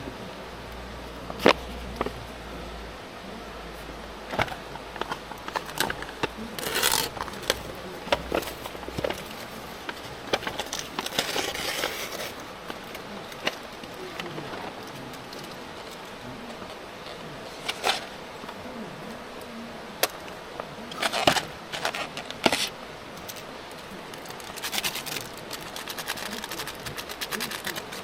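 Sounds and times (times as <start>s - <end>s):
rustling or scraping: 4.3s - 19.3s, 20.4s - 28.0s.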